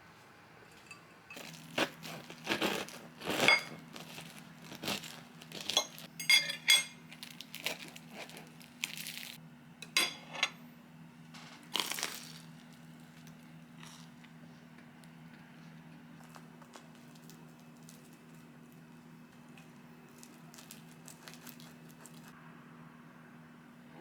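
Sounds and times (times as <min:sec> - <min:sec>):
low steady hum: 0:00.0 - 0:24.0
glass and containers clinking: 0:00.7 - 0:02.2, 0:02.8 - 0:07.8, 0:09.8 - 0:10.6
plastic crinkling: 0:01.4 - 0:06.1, 0:07.1 - 0:09.4, 0:11.6 - 0:13.3, 0:16.2 - 0:22.3.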